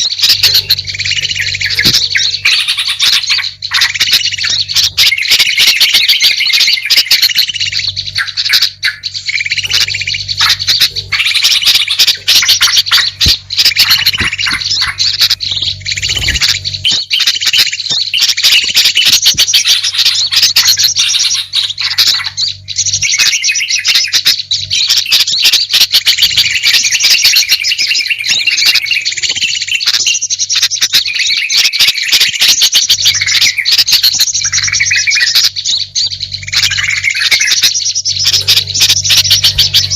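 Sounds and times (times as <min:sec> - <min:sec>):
low steady hum: 0:00.0 - 0:31.4, 0:32.3 - 0:39.9
small songbirds chirping and trilling: 0:00.0 - 0:39.9.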